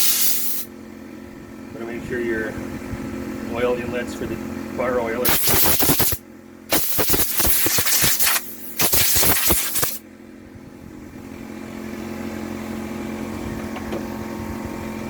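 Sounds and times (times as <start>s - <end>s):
compressed air blasting: 0.0s - 0.7s, 5.2s - 10.0s
steady low hum: 0.0s - 15.0s.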